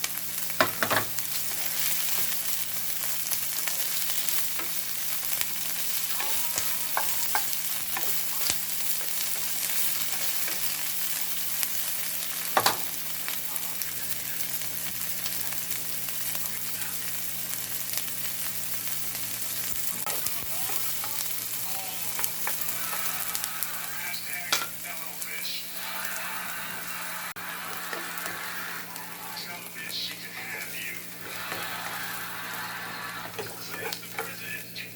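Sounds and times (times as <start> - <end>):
food sizzling in a hot pan: 0.0 - 34.9
utensil scraping a pan: 33.2 - 34.3.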